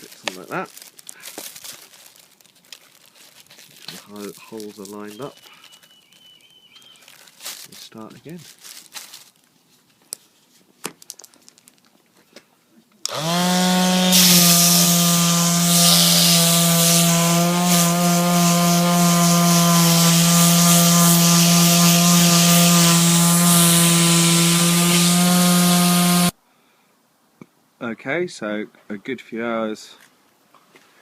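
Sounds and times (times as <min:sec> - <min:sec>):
electric hand sander running: 0:13.1 - 0:26.3
sanding hiss on wood: 0:14.1 - 0:26.4.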